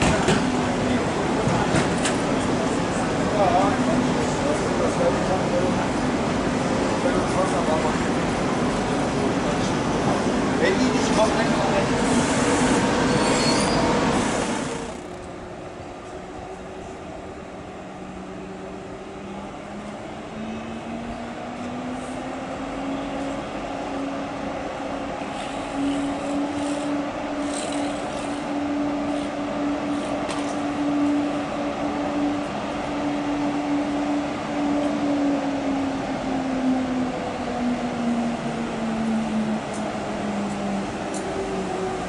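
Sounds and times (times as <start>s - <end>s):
train rumble: 0.0s - 42.0s
electric whine of train: 7.0s - 42.0s
sharp squeaks: 13.1s - 13.9s.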